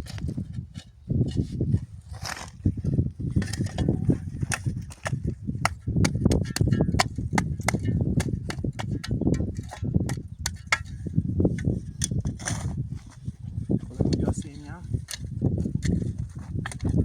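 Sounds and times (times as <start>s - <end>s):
dull low thuds: 0.0s - 17.0s
sharp snaps and knocks: 3.4s - 10.9s.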